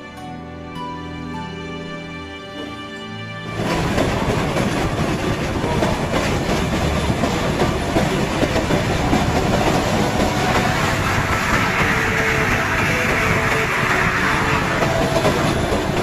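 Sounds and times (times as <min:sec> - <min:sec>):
train wheels rattling on track: 0:03.5 - 0:16.0.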